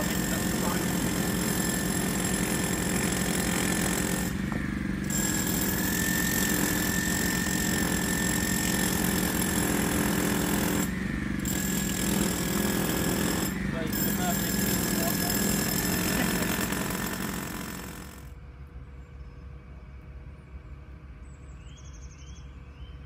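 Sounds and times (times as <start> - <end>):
high machinery whine: 0.0 - 9.0, 9.6 - 15.4
construction machinery engine drone: 0.0 - 23.0.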